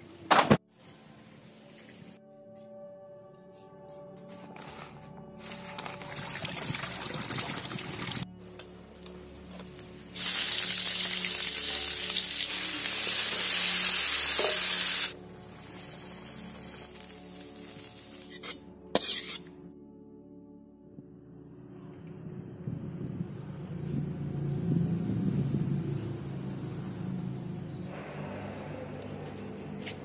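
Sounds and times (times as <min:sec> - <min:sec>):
food sizzling in hot oil: 0:09.6 - 0:19.4.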